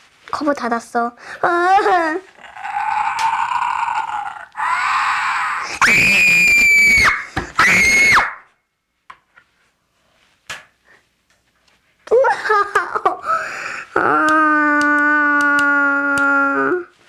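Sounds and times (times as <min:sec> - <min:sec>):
high-pitched screams: 0:02.5 - 0:08.5, 0:14.0 - 0:16.9.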